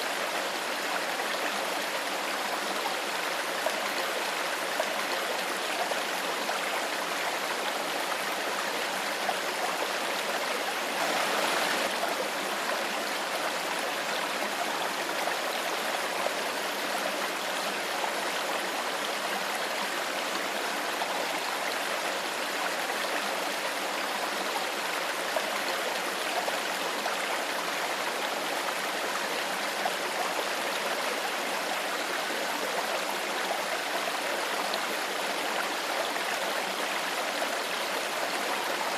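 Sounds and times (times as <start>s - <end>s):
water flowing over rocks: 0.0s - 38.9s.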